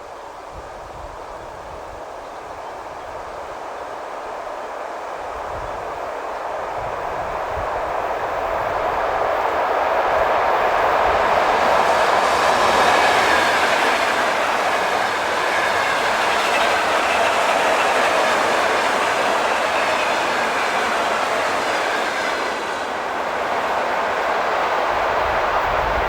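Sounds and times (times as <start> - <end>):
train wheels on rails: 5.5 - 26.0
faint whining tones: 10.9 - 25.6.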